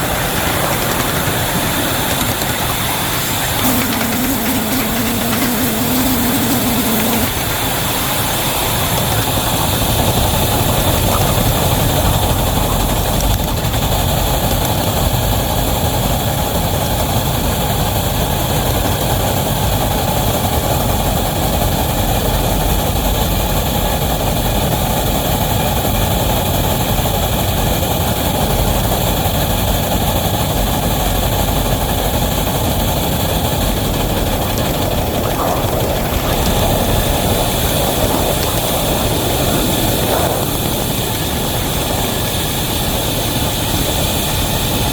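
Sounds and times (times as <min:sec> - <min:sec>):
steam locomotive running: 0:00.0 - 0:44.9.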